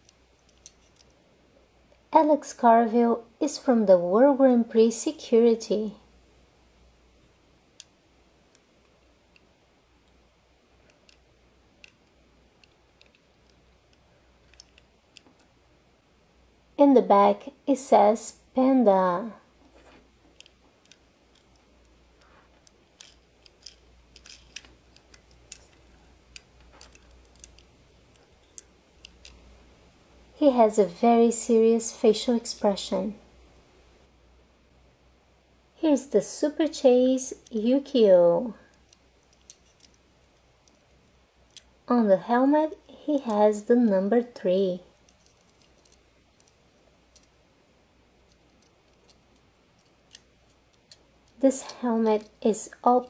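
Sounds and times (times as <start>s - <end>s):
steady low hum: 0.0s - 53.0s
toy car clicks and taps: 22.6s - 29.4s.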